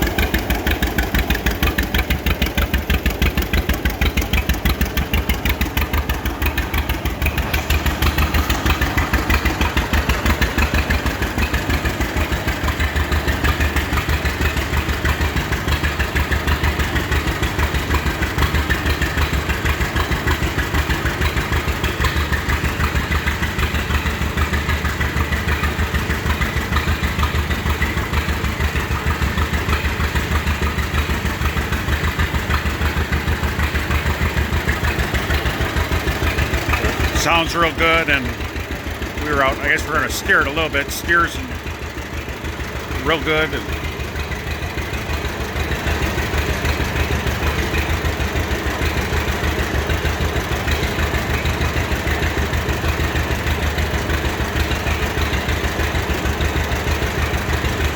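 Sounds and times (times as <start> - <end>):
tractor engine idling: 0.0 - 57.9.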